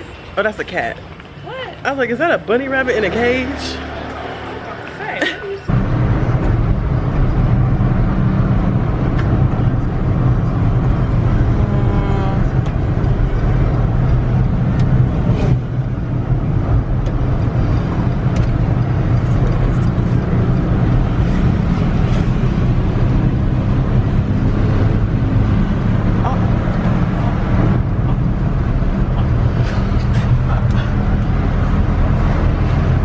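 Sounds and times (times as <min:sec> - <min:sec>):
car engine hum: 0:00.0 - 0:33.0
road noise: 0:00.0 - 0:33.0.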